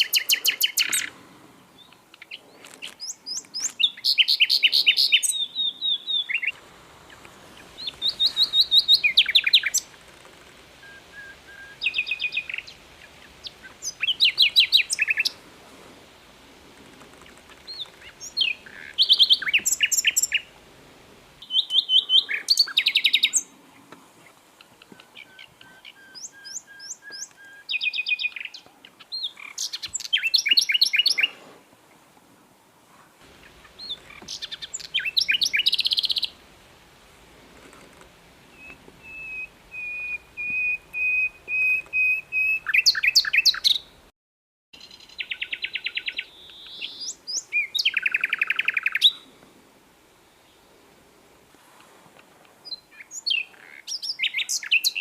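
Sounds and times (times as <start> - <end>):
bird chattering trills: 3.0 - 10.0
bird whistled notes: 10.8 - 12.7, 38.5 - 43.8.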